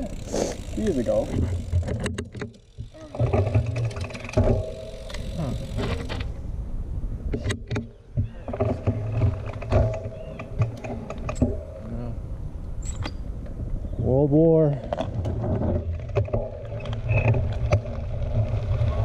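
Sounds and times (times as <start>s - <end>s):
bike clicks and rattles: 0.0s - 6.5s, 7.2s - 11.9s, 12.6s - 13.7s, 14.7s - 19.0s
bike tyres rumbling on dirt: 0.0s - 7.2s, 8.0s - 12.4s, 13.6s - 19.0s.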